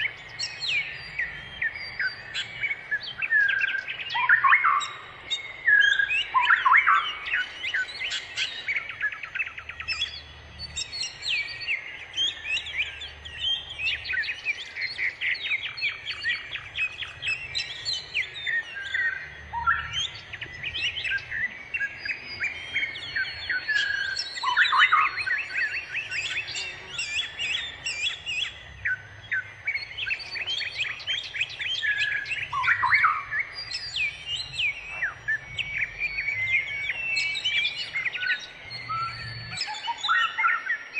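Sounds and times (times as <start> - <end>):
bird song with rapid chirps: 0.0 - 40.9.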